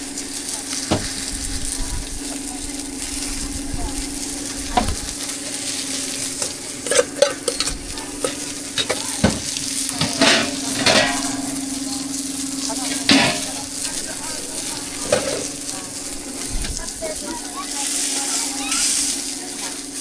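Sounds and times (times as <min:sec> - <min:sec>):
cakes sizzling in a pan: 0:00.0 - 0:20.0
utensils knocking against pan: 0:06.0 - 0:17.2.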